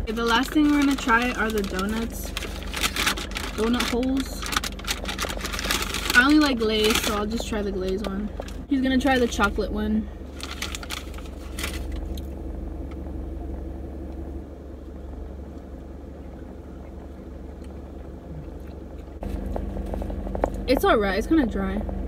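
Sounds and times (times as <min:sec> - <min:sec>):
car engine idling: 0:00.0 - 0:22.0
paper crinkling: 0:00.1 - 0:09.5, 0:10.3 - 0:12.2.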